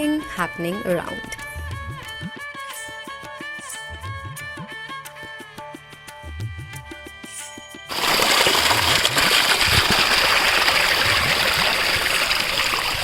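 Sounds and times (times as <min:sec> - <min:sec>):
music: 0:00.0 - 0:07.9.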